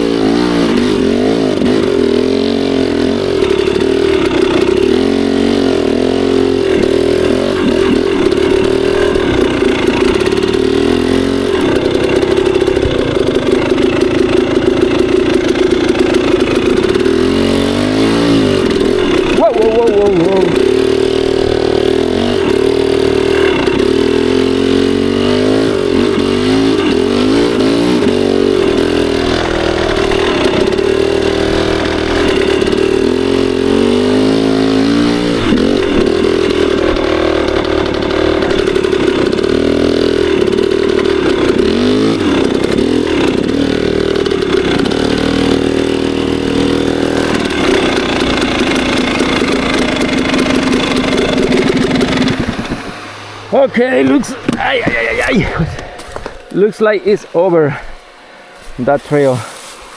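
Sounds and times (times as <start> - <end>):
two-stroke dirt bike engine revving: 0.0 - 59.9.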